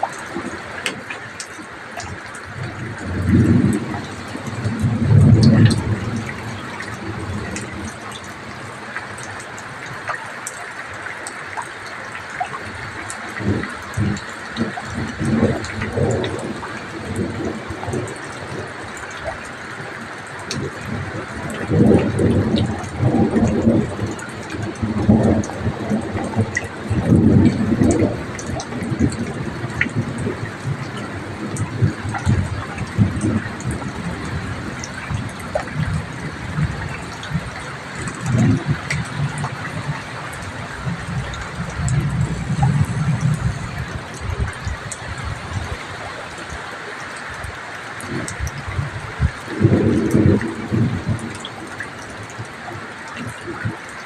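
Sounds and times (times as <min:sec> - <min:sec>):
heavy rain falling: 0:00.0 - 0:54.0
raindrop ticks: 0:00.0 - 0:54.0
low thunder rumbles: 0:02.3 - 0:09.8, 0:12.7 - 0:19.8, 0:20.4 - 0:46.7, 0:48.0 - 0:52.6
strong wind gusting: 0:02.4 - 0:08.9, 0:20.5 - 0:51.6.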